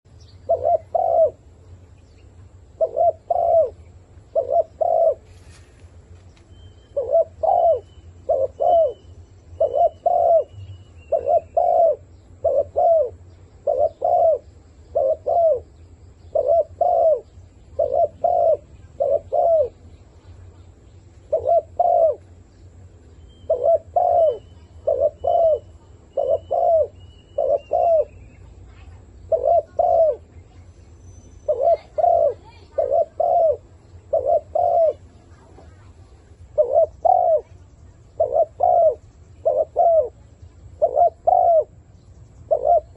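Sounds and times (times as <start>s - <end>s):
faint bird chirping: 0.1s - 42.9s
dove cooing: 0.4s - 1.6s, 2.7s - 5.4s, 6.8s - 19.9s, 21.2s - 22.4s, 23.3s - 30.4s, 31.4s - 42.9s.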